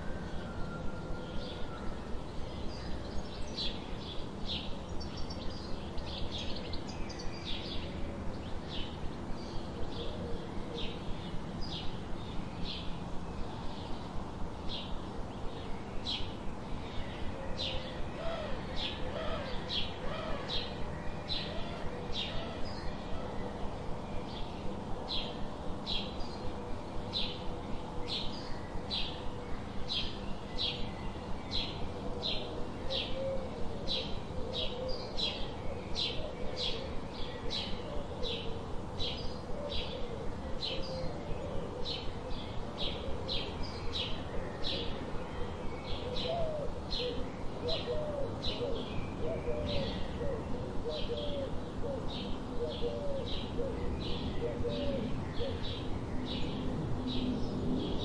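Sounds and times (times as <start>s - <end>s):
lower wavering bird calls: 0.0s - 58.0s.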